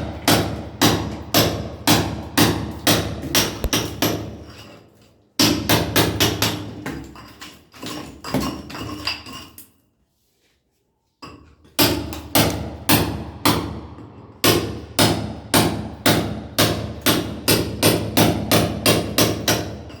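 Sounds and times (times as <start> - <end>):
sledgehammer striking steel chisel: 0.2 - 4.7, 14.4 - 20.0.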